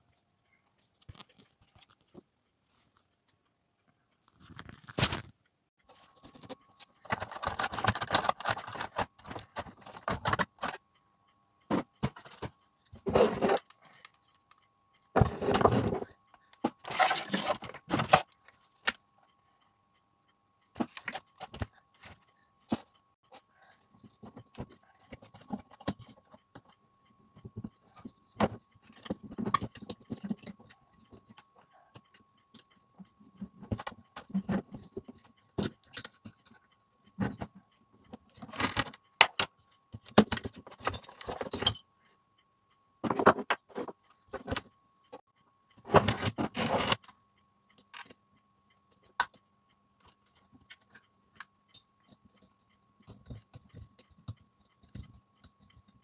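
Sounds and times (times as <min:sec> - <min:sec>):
metal parts and tools clinking: 0:40.3 - 0:41.8, 0:51.7 - 0:52.4.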